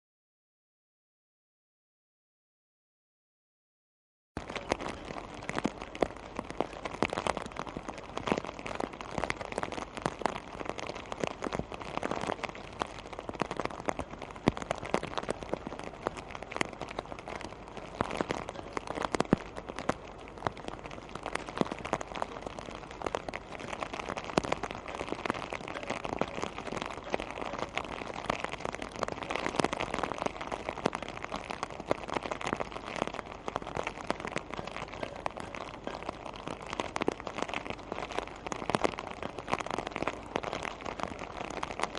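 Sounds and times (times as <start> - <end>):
rain falling steadily: 4.4 - 41.9
raindrops clicking close by: 4.4 - 41.9.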